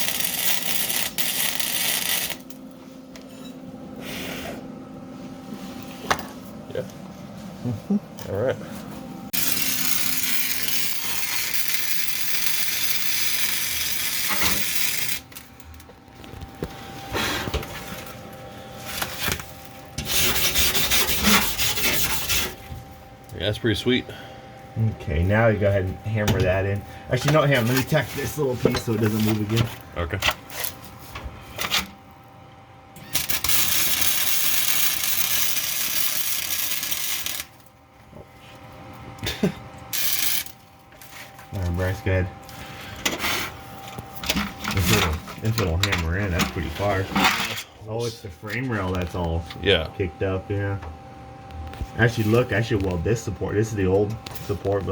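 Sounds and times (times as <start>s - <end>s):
welder arc crackling hiss: 0.0s - 2.6s, 9.4s - 15.4s, 33.1s - 37.6s, 39.9s - 40.6s
welder arc crackling and hissing: 0.0s - 2.9s, 9.3s - 32.0s, 33.0s - 37.7s, 39.2s - 47.2s, 51.4s - 54.9s.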